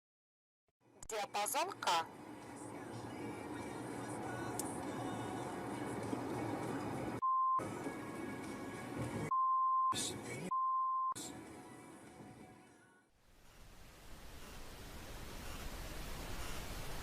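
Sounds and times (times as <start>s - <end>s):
background music: 1.2s - 9.3s
censor bleeps: 7.2s - 7.6s, 9.3s - 11.2s.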